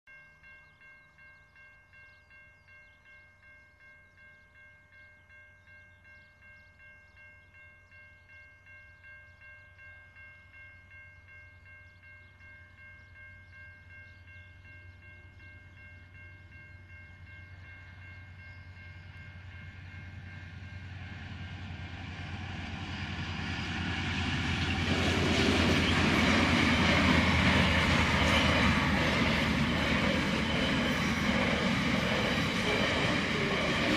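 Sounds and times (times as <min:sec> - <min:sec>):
diesel freight train rumbling: 0:10.2 - 0:33.9.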